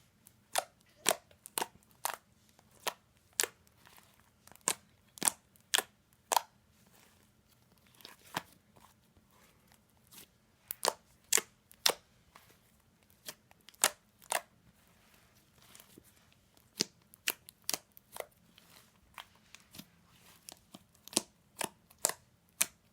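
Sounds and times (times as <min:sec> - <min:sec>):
slime clicking and popping: 0:21.0 - 0:22.9.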